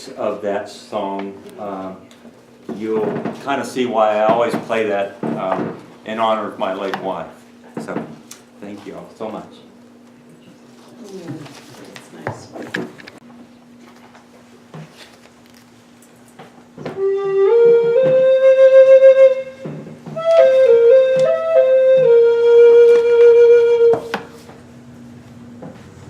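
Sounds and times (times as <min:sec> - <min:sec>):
solo flute melody: 0:16.9 - 0:24.3.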